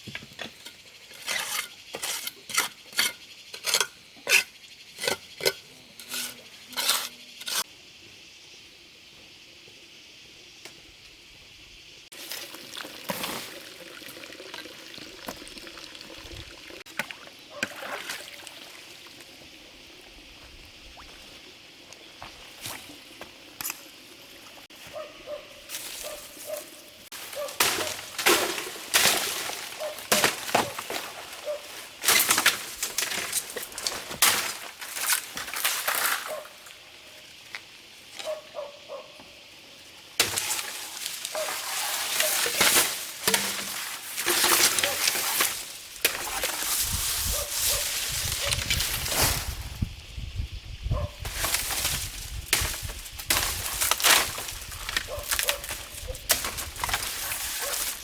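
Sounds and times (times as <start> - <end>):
water pouring and splashing: 12.1 - 19.3, 40.2 - 49.4.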